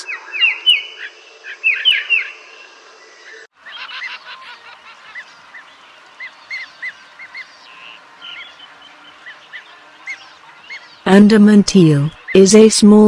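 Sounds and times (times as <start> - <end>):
flock of ducks calling: 3.6 - 11.0.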